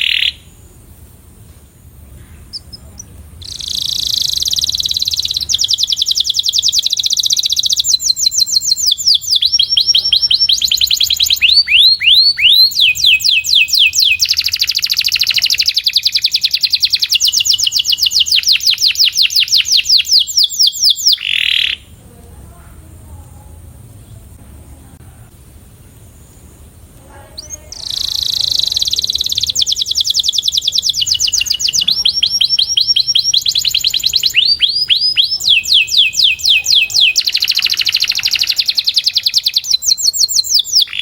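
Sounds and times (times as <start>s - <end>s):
canary singing trills: 0.0s - 22.6s, 25.9s - 41.0s.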